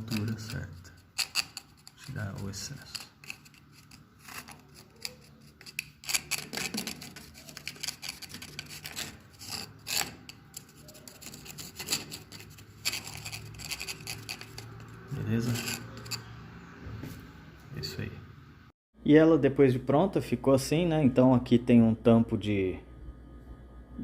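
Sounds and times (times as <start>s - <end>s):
metal tool scraping mortar: 0.0s - 16.4s.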